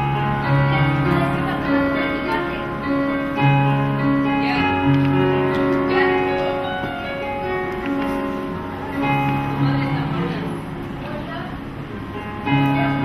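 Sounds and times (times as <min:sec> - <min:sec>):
slow keyboard chords: 0:00.0 - 0:13.0.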